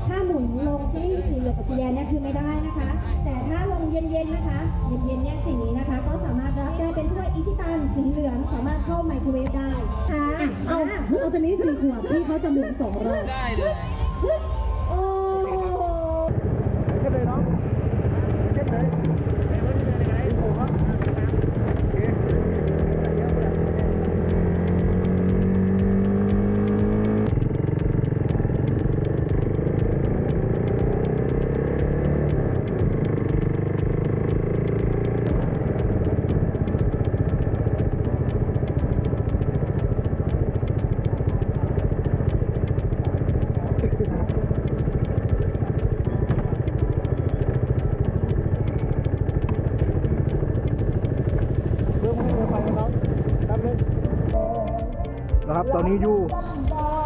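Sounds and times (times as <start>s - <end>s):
motorcycle engine running: 16.2s - 57.0s.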